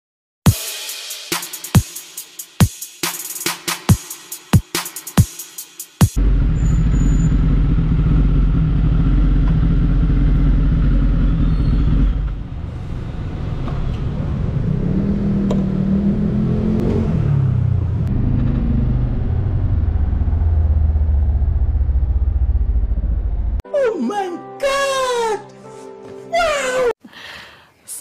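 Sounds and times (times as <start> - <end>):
motorcycle engine idling: 6.2 - 12.3
low rumble: 6.2 - 14.9, 16.7 - 23.6.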